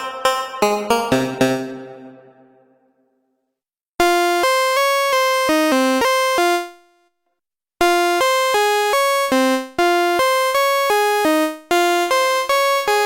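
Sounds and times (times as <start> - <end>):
buzzy synthesizer melody: 0.0 - 2.6.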